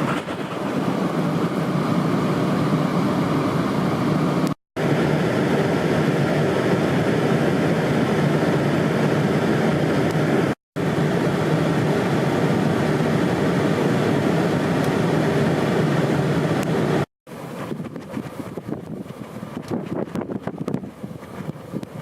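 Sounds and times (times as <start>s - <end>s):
wind buffeting microphone: 17.4s - 22.0s.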